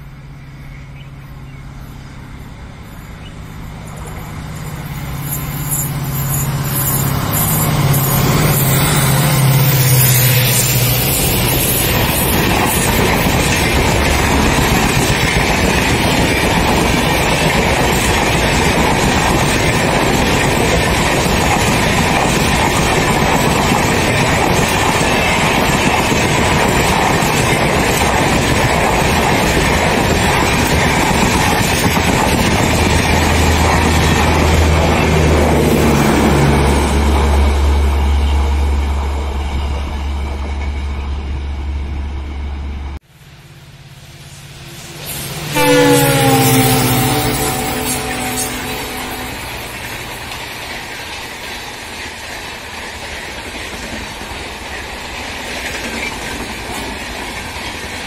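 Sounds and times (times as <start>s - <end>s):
diesel locomotive engine drone: 0.0s - 58.0s
train wheels rushing on rails: 0.0s - 58.0s.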